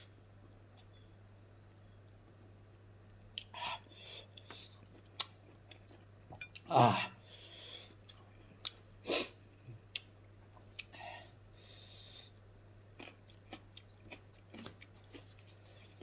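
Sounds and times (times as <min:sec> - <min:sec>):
low steady hum: 0:00.0 - 0:16.0
person chewing: 0:03.3 - 0:06.7, 0:12.8 - 0:16.0.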